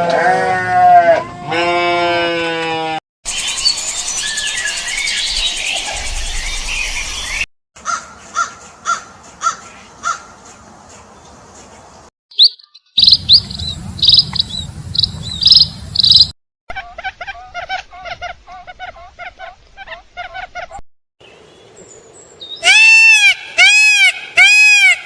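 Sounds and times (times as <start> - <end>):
bird calls: 3.6 - 16.3
low rumble: 5.8 - 7.4, 13.0 - 16.3
fast lower bird calls: 12.3 - 16.3
loud high chirps: 12.3 - 16.3.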